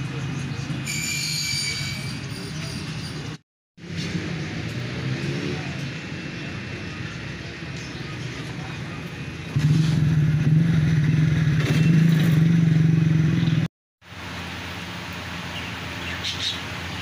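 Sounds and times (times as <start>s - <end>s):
outdoor market background: 0.0s - 17.0s
vehicle engine running: 3.8s - 17.0s.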